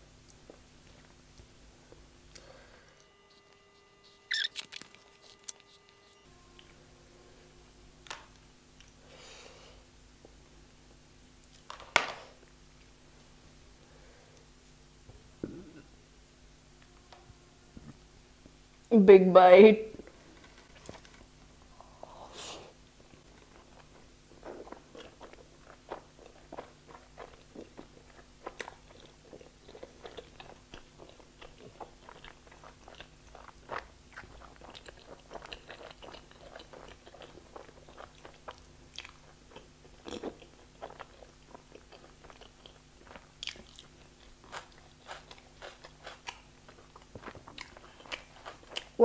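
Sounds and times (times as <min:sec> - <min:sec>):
person chewing food: 0:00.2 - 0:06.8, 0:23.1 - 0:49.0.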